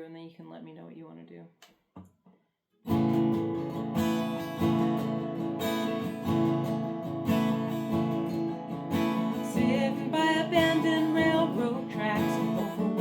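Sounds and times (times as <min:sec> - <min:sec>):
acoustic guitar strumming chords: 0:02.9 - 0:13.0.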